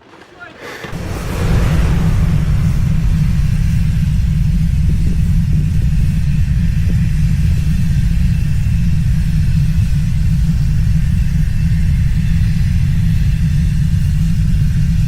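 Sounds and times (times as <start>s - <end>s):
rumble of falling rock: 0.8s - 7.1s.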